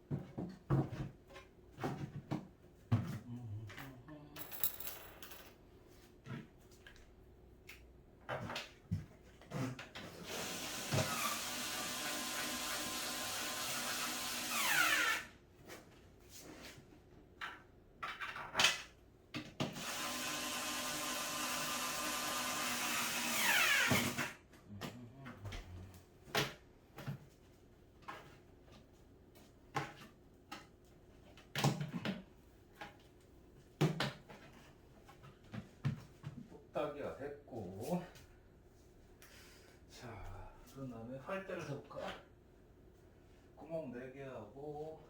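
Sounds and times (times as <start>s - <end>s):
electric drill driving screws: 10.2s - 15.3s, 19.7s - 24.4s.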